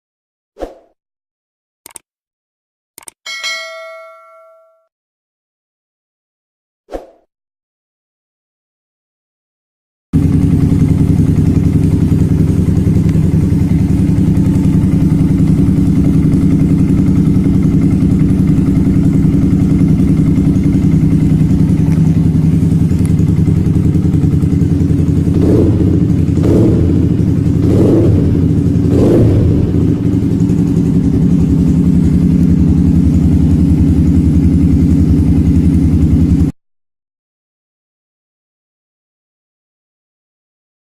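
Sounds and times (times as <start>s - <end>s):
motorcycle engine idling: 10.2s - 36.5s.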